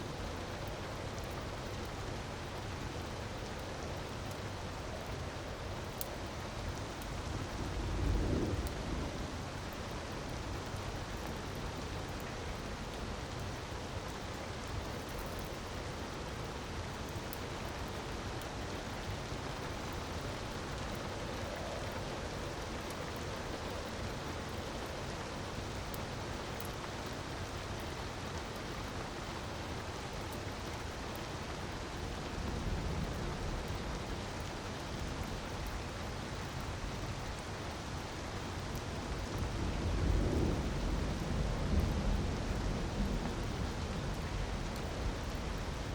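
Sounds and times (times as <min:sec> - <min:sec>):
wood fire crackling: 0:03.2 - 0:27.9.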